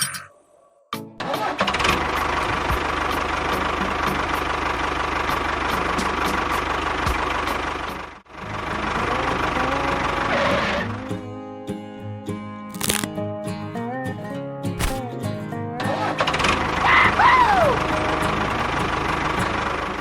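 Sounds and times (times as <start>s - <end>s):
tractor engine knocking: 1.4s - 10.8s, 16.2s - 16.9s, 17.7s - 20.0s.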